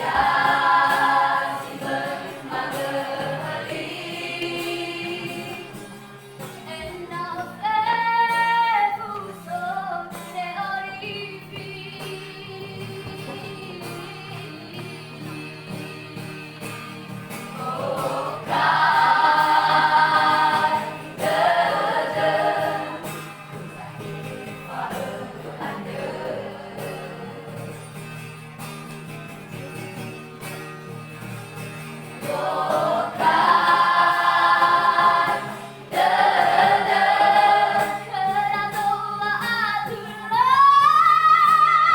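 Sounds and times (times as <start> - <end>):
vocal group singing gospel: 0.0 - 6.1, 11.3 - 28.1, 32.1 - 40.9.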